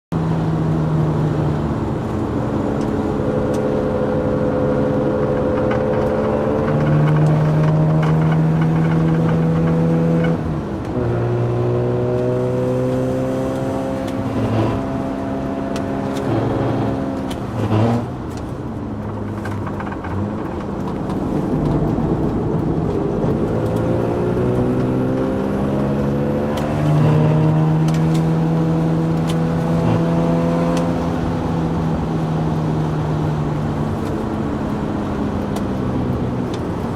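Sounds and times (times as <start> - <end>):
car engine revving: 0.2 - 36.9.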